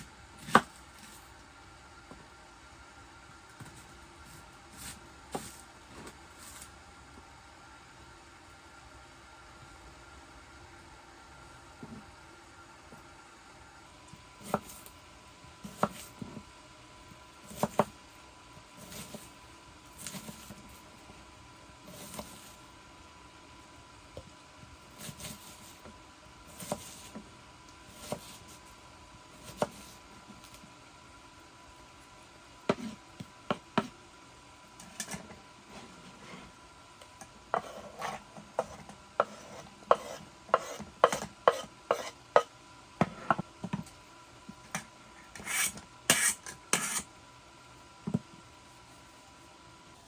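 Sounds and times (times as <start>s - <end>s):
utensil tapping and scraping cookware: 37.5s - 43.4s.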